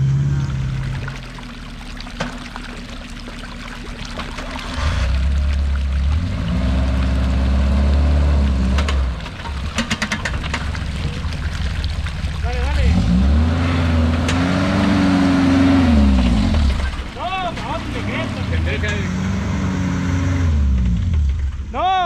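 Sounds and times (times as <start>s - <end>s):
vehicle engine revving: 0.0s - 1.5s, 4.2s - 21.7s
sharp clicks and knocks: 8.7s - 12.2s.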